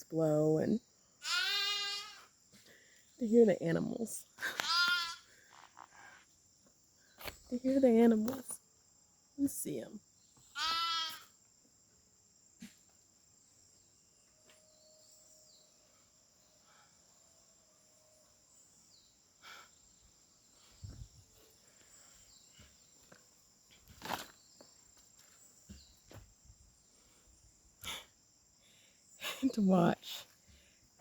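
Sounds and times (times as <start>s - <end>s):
high insect buzz: 0.8s - 3.2s, 4.2s - 17.2s
sheep or goat bleat: 1.2s - 2.2s, 4.6s - 5.2s, 10.6s - 11.2s.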